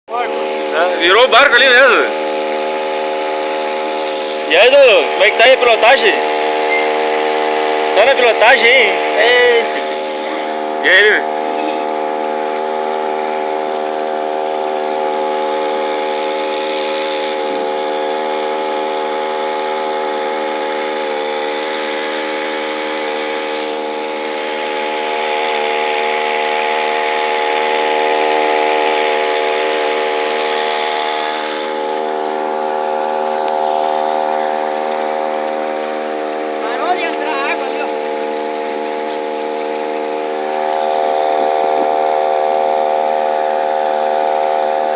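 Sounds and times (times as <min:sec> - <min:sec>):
outboard motor running: 0:00.0 - 0:44.9.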